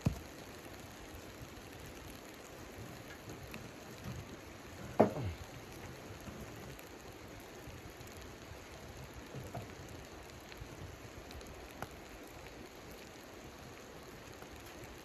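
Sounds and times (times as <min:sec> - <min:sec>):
soft steady patter: 0:00.0 - 0:15.0.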